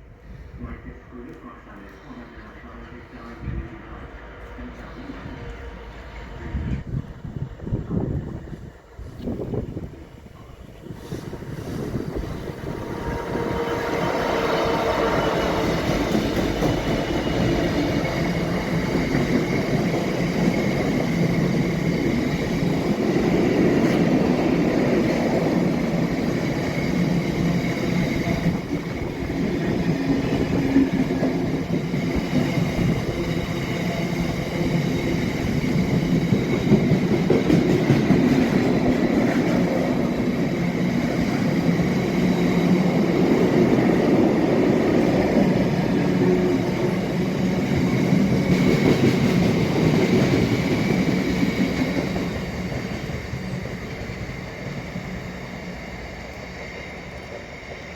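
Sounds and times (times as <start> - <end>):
diesel locomotive engine drone: 0.0 - 57.9.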